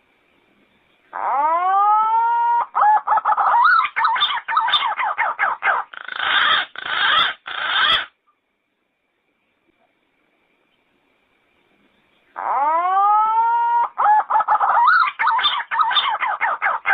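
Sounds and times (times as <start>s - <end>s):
pigeon whistled calls: 12.5s - 16.9s.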